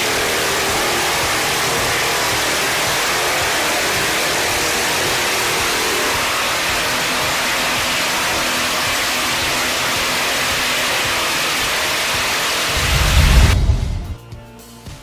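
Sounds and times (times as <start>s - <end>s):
heavy machinery rushing noise: 12.5s - 14.2s
deep low rumble: 12.8s - 14.2s.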